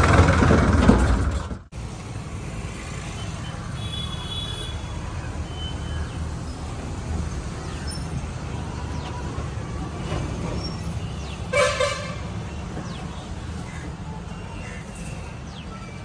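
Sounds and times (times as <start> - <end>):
tractor diesel engine running: 0.0 - 3.1.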